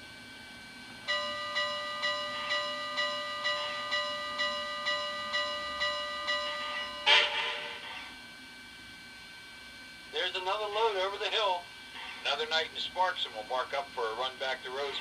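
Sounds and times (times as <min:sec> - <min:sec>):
model train locomotive bell ringing: 0:01.0 - 0:08.1.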